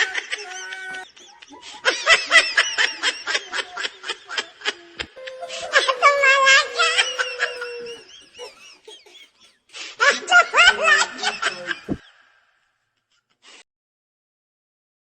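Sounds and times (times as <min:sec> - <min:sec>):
high-pitched laughter: 0:00.0 - 0:03.9, 0:05.2 - 0:12.0.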